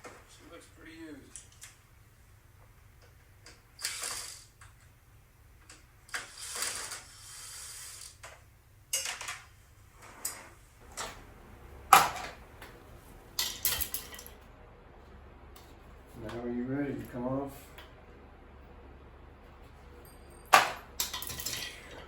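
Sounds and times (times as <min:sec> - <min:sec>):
bread maker parts scraping and rattling: 0:05.7 - 0:14.5, 0:19.6 - 0:22.0.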